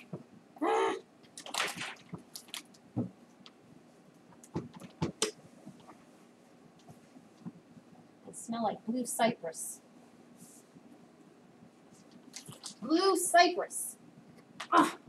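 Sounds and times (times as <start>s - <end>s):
objects knocking: 4.4s - 5.9s.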